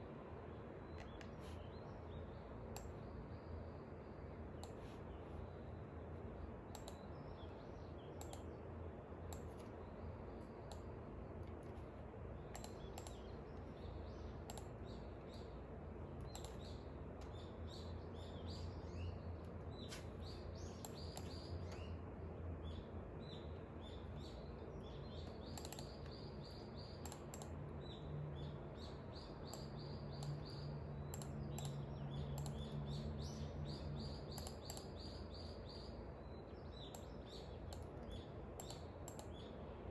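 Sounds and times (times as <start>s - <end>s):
songbirds chirping: 0.0s - 39.9s
sharp clicks: 4.6s - 4.8s, 6.7s - 7.2s, 8.2s - 8.6s, 10.6s - 11.6s, 12.4s - 13.7s, 14.4s - 15.5s, 16.2s - 17.3s, 20.8s - 21.9s, 25.2s - 26.2s, 27.0s - 27.6s, 29.5s - 32.8s, 34.3s - 35.0s, 36.8s - 39.5s.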